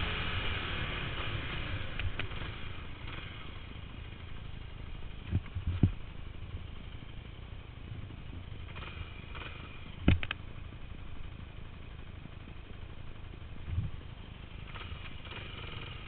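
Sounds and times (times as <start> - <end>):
dirt bike engine rumble: 0.0 - 16.0.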